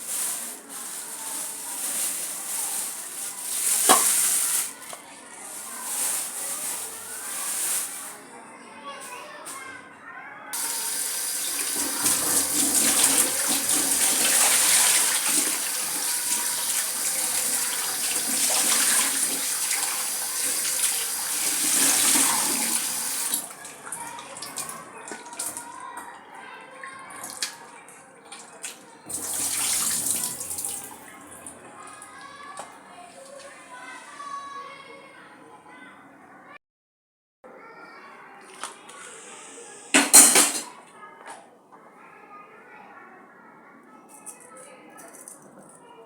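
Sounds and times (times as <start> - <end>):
tap water running into sink: 2.7 - 5.0, 10.6 - 25.6, 29.1 - 31.5.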